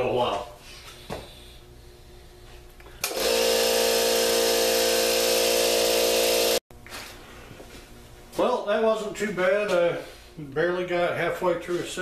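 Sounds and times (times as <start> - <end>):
air compressor running: 0.8 - 7.8.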